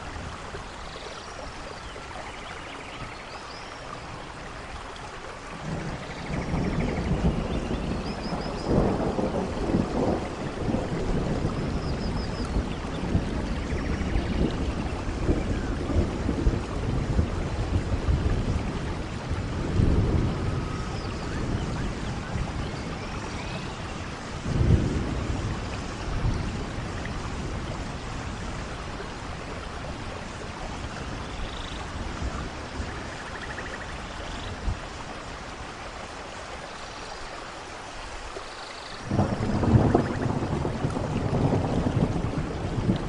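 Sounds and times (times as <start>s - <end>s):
steady rain falling: 0.0s - 43.0s
thunder rumbling: 5.6s - 33.9s, 39.0s - 43.0s.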